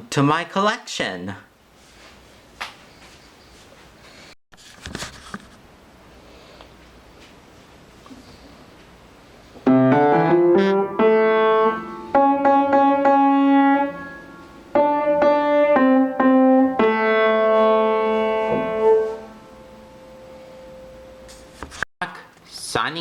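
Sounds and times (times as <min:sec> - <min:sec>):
piano melody: 0:09.6 - 0:21.3.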